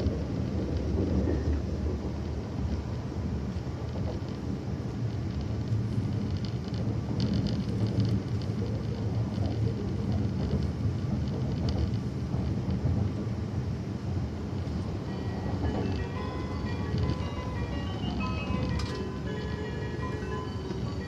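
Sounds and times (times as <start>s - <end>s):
train running rumble: 0.0s - 21.0s
onboard chime melody: 15.3s - 21.0s.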